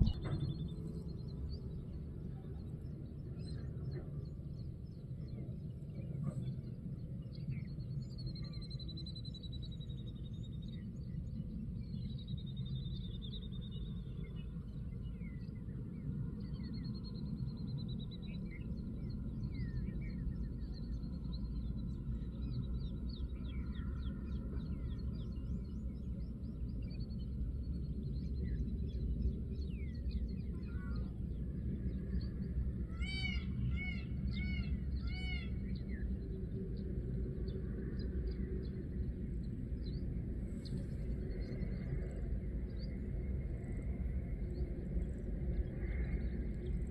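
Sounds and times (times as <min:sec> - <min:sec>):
wind on microphone: 0:00.0 - 0:08.9
small birds chirping: 0:00.0 - 0:43.0.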